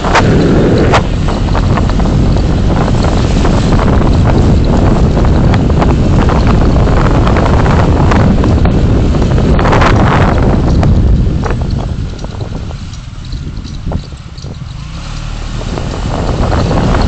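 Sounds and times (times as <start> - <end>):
car road and wind noise: 0.0 - 17.0
small clicks and rattles: 0.2 - 8.7, 9.8 - 15.8.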